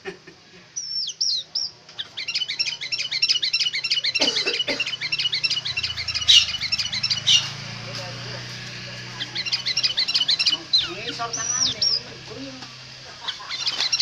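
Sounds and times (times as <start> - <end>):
bird whistling and chirping: 0.8 - 7.7, 9.2 - 12.0, 13.2 - 14.0.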